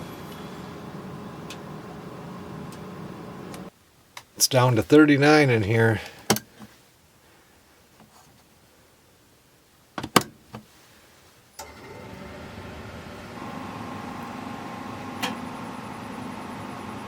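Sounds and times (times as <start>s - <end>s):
furnace blower motor humming: 11.6s - 17.0s.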